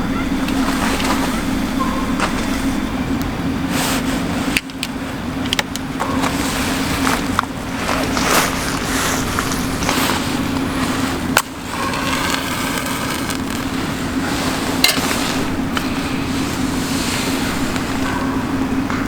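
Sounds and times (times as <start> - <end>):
wood fire crackling: 0.0 - 18.8
steady low hum: 0.0 - 19.0
fire pops: 4.5 - 17.9.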